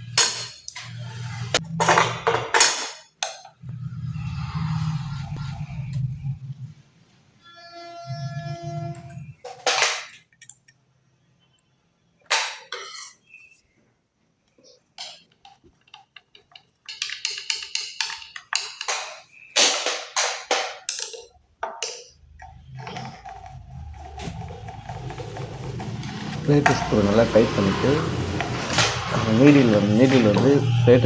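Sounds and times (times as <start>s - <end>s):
metallic clicks and knocks: 15.0s - 26.0s.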